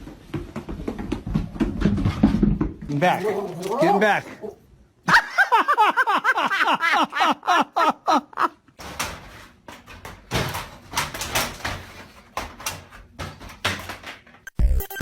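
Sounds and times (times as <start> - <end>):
knocks and rattles: 8.7 - 14.6.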